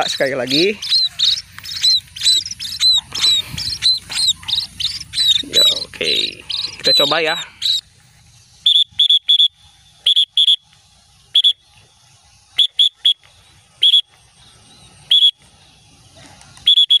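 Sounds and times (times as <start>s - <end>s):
high-pitched whistle blasts: 8.6s - 10.7s, 11.3s - 11.6s, 12.5s - 13.2s, 13.8s - 14.1s, 15.1s - 15.4s, 16.6s - 17.0s.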